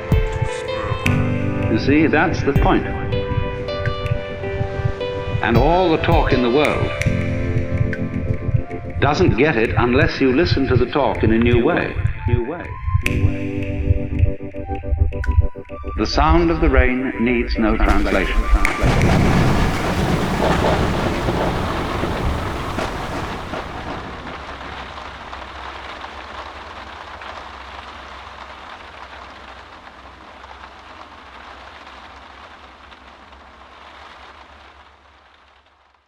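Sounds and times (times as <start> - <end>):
rain falling: 0.0 - 12.4, 17.8 - 36.0
low rumble of thunder: 17.9 - 25.9.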